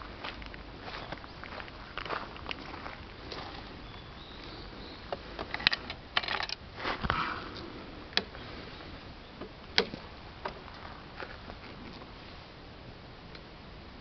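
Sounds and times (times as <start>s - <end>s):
sharp handling clicks and knocks: 5.1s - 7.2s, 9.4s - 10.8s.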